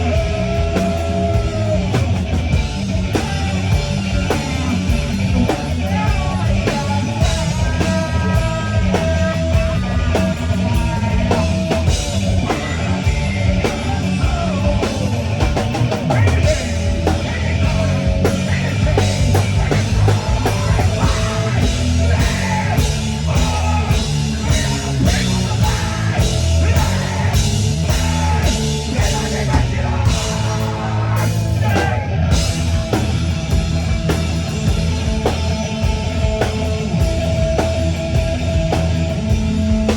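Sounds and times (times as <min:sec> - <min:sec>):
drum kit: 0:00.0 - 0:39.9
guitar: 0:00.0 - 0:39.9
person singing: 0:03.0 - 0:32.8.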